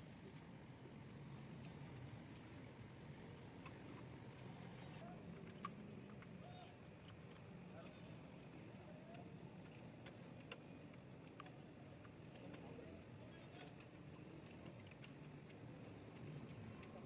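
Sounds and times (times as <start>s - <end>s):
faint low hum: 0.0s - 17.0s
light ticks: 3.4s - 17.0s.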